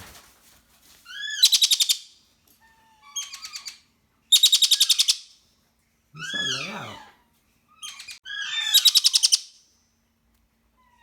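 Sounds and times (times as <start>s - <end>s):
parakeet chattering calls: 7.8s - 9.5s.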